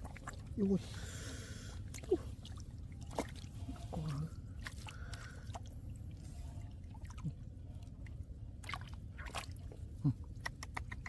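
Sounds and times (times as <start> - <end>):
hands squelching in wet mud: 0.0 - 6.4, 8.6 - 11.0
small water splashes and drips: 0.0 - 11.0.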